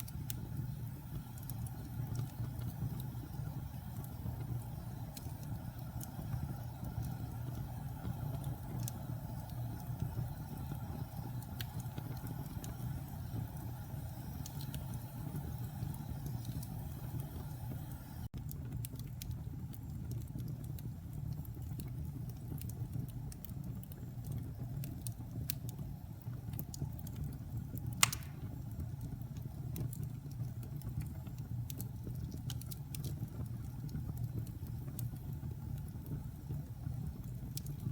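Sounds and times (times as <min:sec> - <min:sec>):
wood fire crackling: 0:00.0 - 0:37.9
sharp pop of fire: 0:27.9 - 0:28.7.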